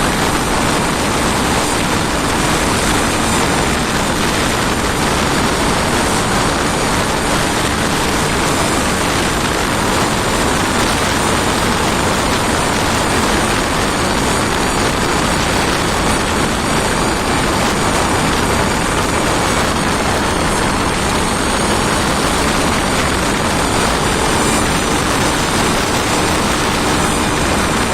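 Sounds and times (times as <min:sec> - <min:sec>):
engine running with roar: 0:00.0 - 0:27.9.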